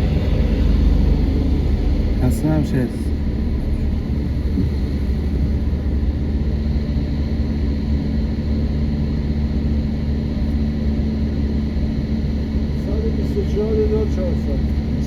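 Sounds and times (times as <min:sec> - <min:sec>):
car engine rumble inside cabin: 0:00.0 - 0:15.0.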